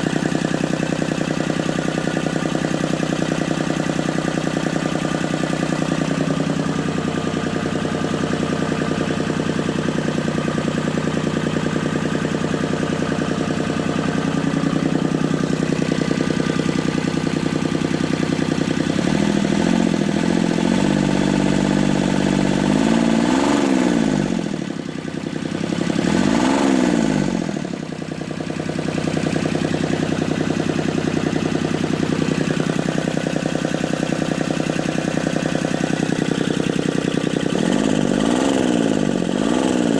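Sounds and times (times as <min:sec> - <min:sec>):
diesel engine revving: 0:13.6 - 0:24.9, 0:25.6 - 0:27.9, 0:35.2 - 0:39.9.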